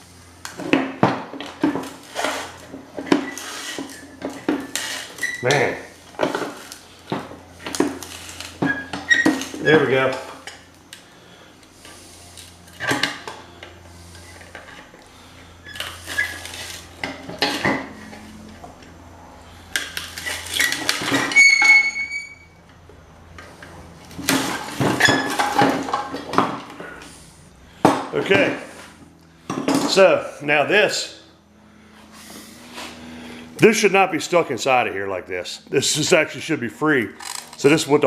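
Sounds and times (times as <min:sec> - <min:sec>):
metal piece ringing: 0:21.3 - 0:22.5.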